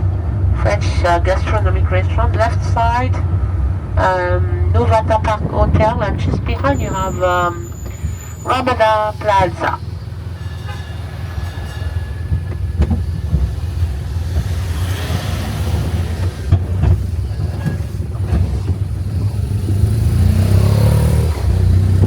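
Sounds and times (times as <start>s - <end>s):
road train engine and rolling rumble: 0.0s - 22.0s
knocks and rattles: 9.7s - 20.0s.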